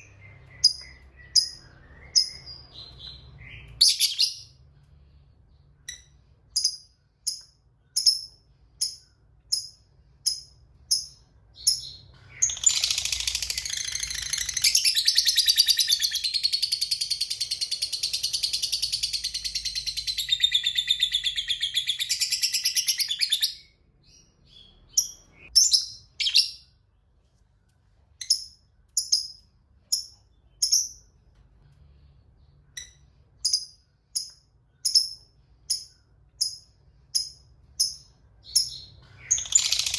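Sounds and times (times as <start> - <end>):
bird chirping: 0.0 - 39.9
bird chattering trill: 37.2 - 39.9.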